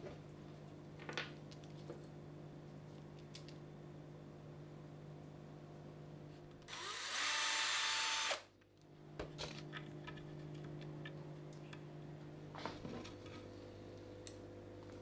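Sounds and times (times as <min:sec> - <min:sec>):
small electric power tool: 0:06.7 - 0:08.5.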